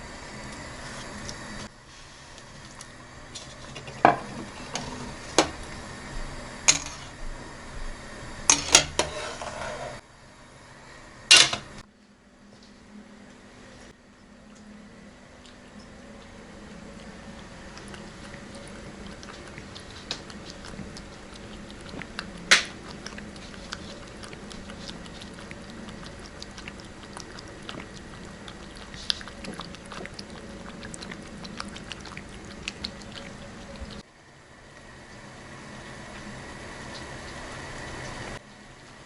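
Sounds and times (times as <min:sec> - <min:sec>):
cat lapping: 0:15.4 - 0:34.0.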